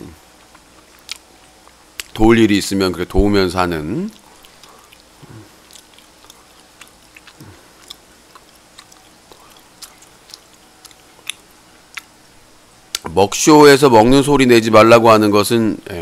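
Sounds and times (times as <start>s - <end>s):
person chewing food: 0.3s - 2.2s, 4.0s - 12.2s
short low hums: 5.2s - 5.6s.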